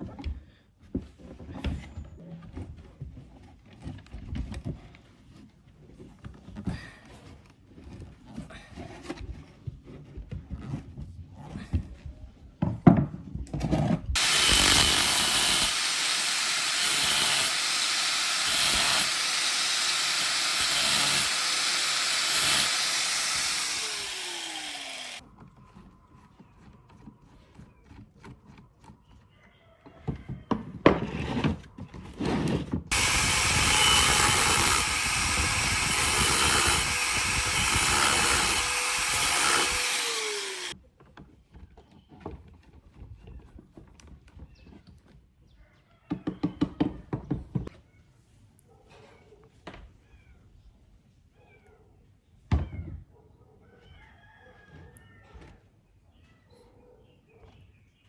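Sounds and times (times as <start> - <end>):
power tool motor spinning: 14.2 - 25.2, 32.9 - 40.8.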